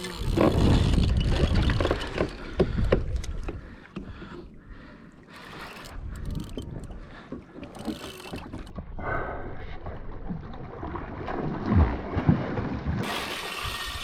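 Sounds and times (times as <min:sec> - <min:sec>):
water around a kayak: 0:00.0 - 0:14.0
wind on microphone: 0:00.1 - 0:03.6.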